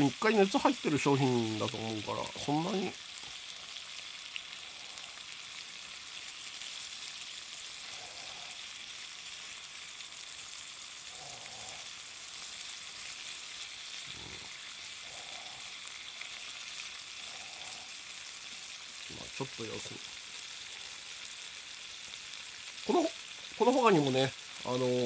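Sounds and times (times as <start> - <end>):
food sizzling in a skillet: 0.0 - 25.0.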